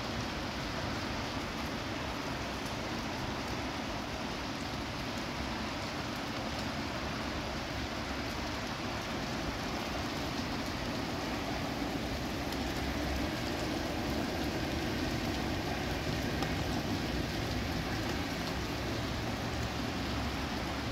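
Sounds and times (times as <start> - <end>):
rain hissing on wet street: 0.0 - 20.9
raindrop ticks: 8.2 - 20.9.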